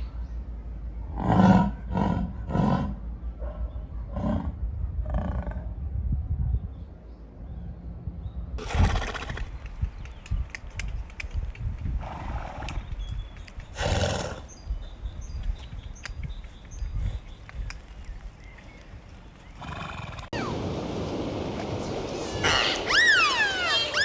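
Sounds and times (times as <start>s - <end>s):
horse calling: 8.6s - 20.3s.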